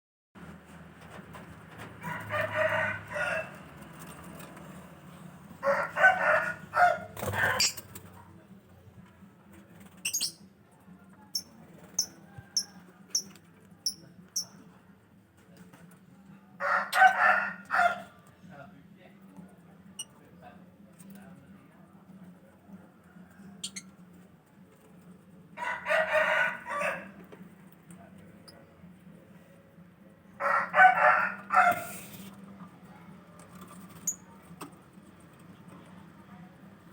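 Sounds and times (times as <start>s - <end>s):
rooster crowing: 2.0s - 3.6s, 5.6s - 7.7s, 16.6s - 18.0s, 25.6s - 27.2s, 30.4s - 32.0s.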